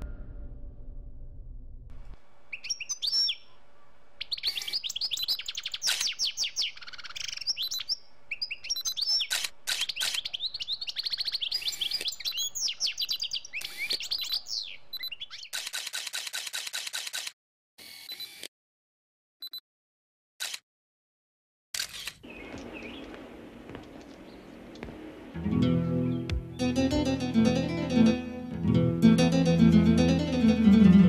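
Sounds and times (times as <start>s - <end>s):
birds chirping: 2.5s - 15.6s, 22.2s - 28.1s
fast run of clicks: 15.5s - 17.4s.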